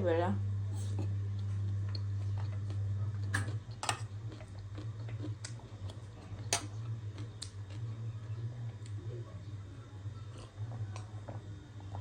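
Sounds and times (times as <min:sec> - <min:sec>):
steady low hum: 0:00.0 - 0:12.0
crunching of snack being eaten: 0:00.8 - 0:09.0, 0:10.0 - 0:11.2.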